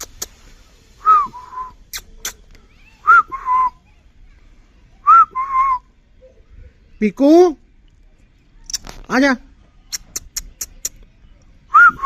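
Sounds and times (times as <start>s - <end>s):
sharp clicks: 9.9s - 11.1s.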